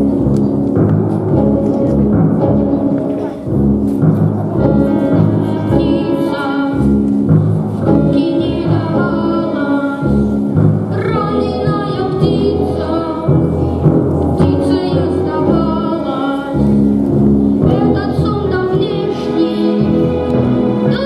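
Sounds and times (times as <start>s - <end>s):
instrumental accompaniment: 0.0s - 21.0s
children's choir singing: 4.4s - 16.8s, 17.6s - 21.0s.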